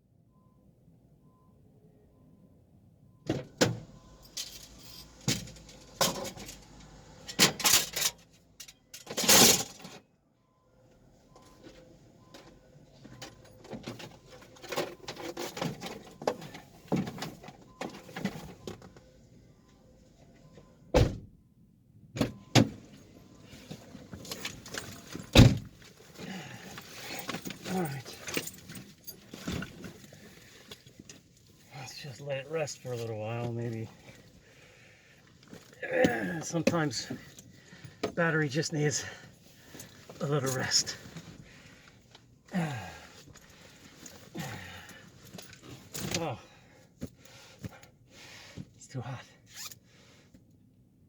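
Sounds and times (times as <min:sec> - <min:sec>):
thumps and clunks on a car: 0:23.6 - 0:27.7, 0:35.5 - 0:38.2.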